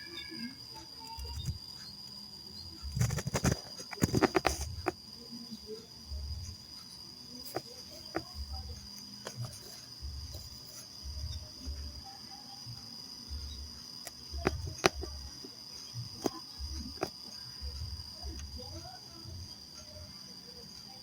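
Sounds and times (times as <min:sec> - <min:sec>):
high-pitched insect tone: 0:00.0 - 0:21.0
sharp clicks: 0:02.7 - 0:05.0, 0:12.7 - 0:18.8.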